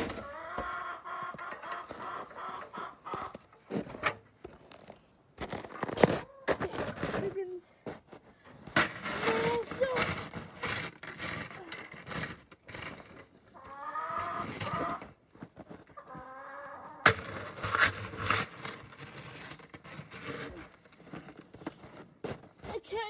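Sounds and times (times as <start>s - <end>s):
chickens calling: 0.0s - 3.8s, 5.8s - 6.6s, 13.4s - 15.1s, 15.9s - 17.6s
scuffling and clattering: 0.0s - 16.3s, 17.1s - 23.0s.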